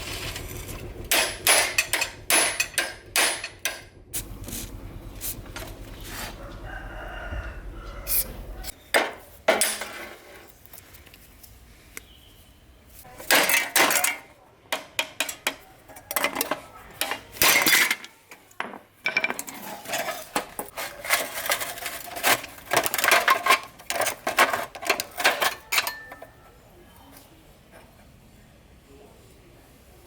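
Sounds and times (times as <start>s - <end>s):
small metal parts clinking: 19.0s - 26.5s.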